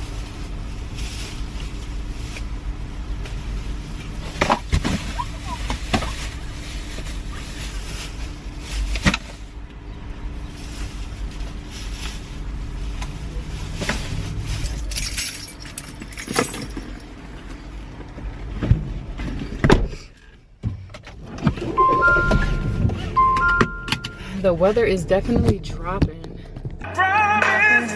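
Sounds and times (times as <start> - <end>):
parking lot noise: 0.0 - 27.9
keys jangling: 14.6 - 17.1.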